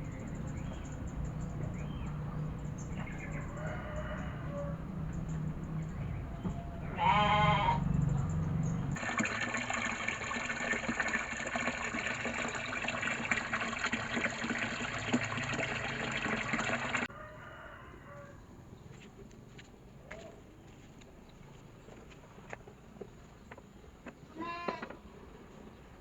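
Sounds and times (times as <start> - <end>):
short bleat: 6.9 - 7.9, 24.3 - 25.0
water gushing onto plants: 8.9 - 17.1.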